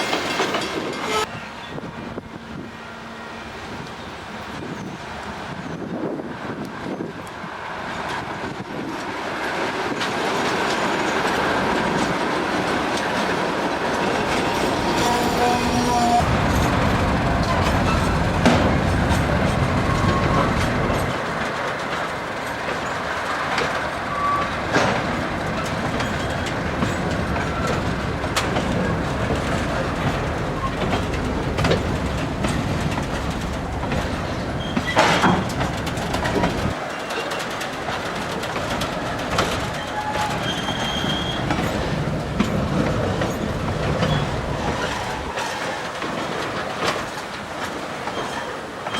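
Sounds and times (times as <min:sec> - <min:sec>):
wagon wheels clattering over rails: 0:09.9 - 0:48.9
locomotive engine rumble: 0:11.1 - 0:45.8.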